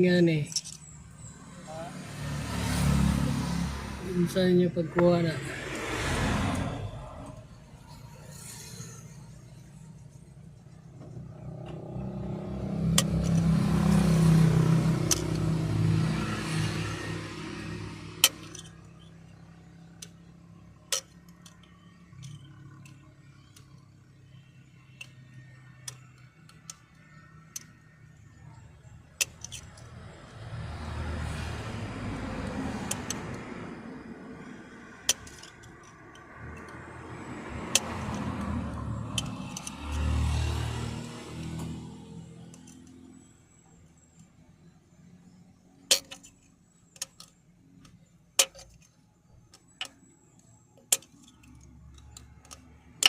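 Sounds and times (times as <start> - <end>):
car engine revving: 0.6 - 9.5, 10.9 - 18.8, 29.2 - 43.1
sharp clicks: 37.6 - 40.1.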